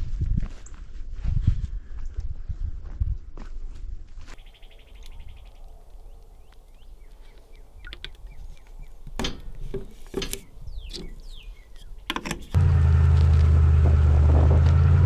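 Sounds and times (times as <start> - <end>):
birds chirping: 4.4 - 12.6.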